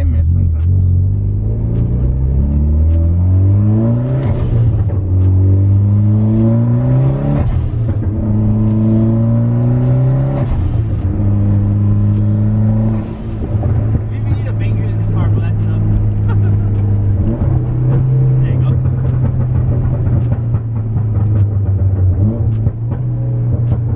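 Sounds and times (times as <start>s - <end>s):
car engine accelerating hard: 0.0s - 23.9s.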